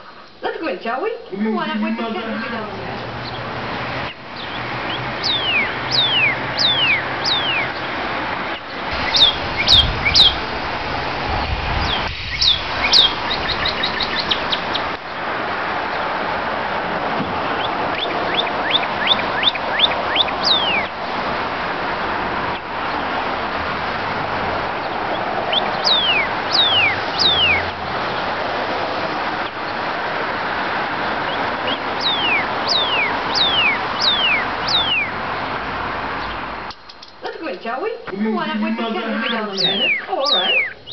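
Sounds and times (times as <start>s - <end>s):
steady rushing background noise: 1.6s - 37.2s
cardinal singing whistles: 5.2s - 7.7s, 9.0s - 10.4s, 11.8s - 14.7s, 18.0s - 20.9s, 25.5s - 27.7s, 31.7s - 35.2s, 39.2s - 40.9s.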